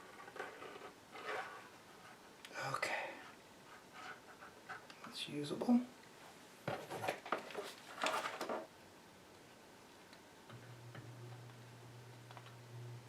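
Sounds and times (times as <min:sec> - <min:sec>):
low steady hum: 0:08.2 - 0:13.0.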